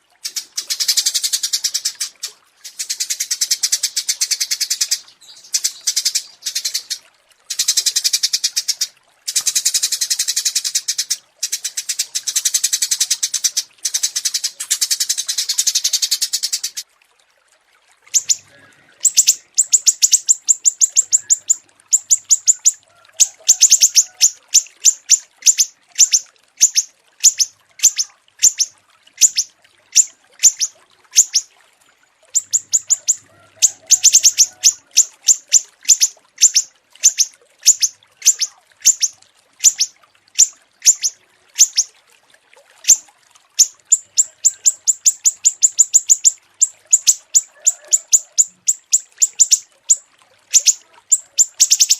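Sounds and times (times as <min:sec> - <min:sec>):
small songbird chirping: 0:18.2 - 0:18.4, 0:19.0 - 0:22.8, 0:23.6 - 0:31.4, 0:32.4 - 0:33.2, 0:33.8 - 0:41.9, 0:43.6 - 0:50.0, 0:50.6 - 0:51.9.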